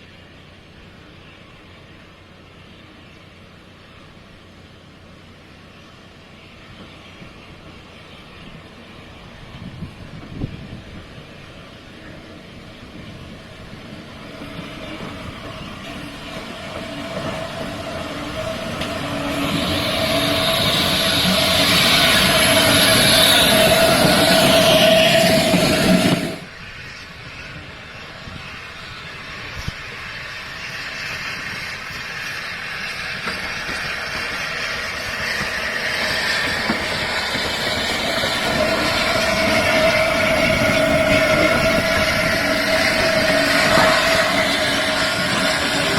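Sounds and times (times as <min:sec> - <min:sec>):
train approaching: 0:00.0 - 0:45.9
steady whine: 0:12.4 - 0:45.9.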